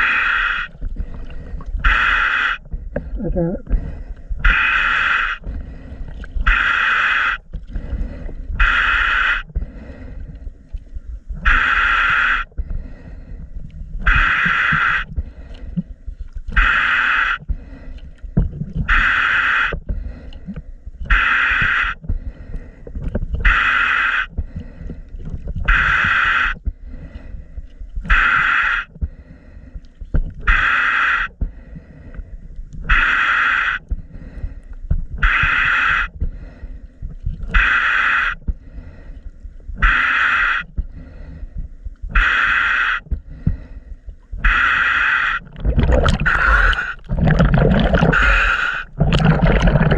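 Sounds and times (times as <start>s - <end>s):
regulator breath hissing: 0.0s - 1.2s, 1.8s - 2.6s, 3.8s - 10.3s, 11.4s - 13.4s, 14.1s - 15.8s, 16.6s - 18.0s, 18.9s - 22.8s, 23.4s - 25.1s, 28.1s - 29.9s, 30.5s - 32.3s, 32.9s - 36.9s, 37.5s - 45.5s, 48.0s - 49.0s
low bubbling rumble: 45.4s - 49.9s.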